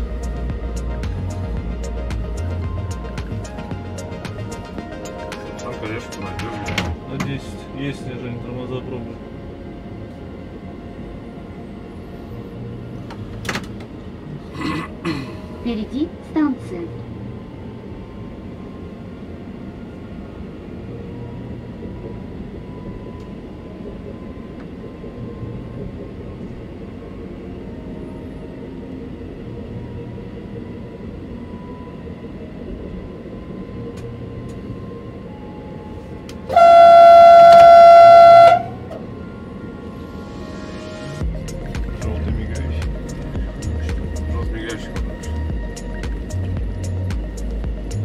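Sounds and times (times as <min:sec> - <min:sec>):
train cab rumble with whine: 0:00.0 - 0:48.0
train horn blast: 0:36.4 - 0:40.2.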